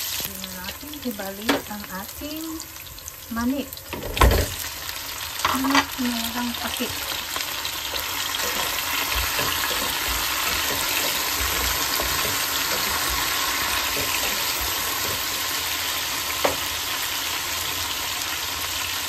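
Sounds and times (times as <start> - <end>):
chicken sizzling in oil: 0.0 - 19.0
spatula stirring: 6.6 - 15.8.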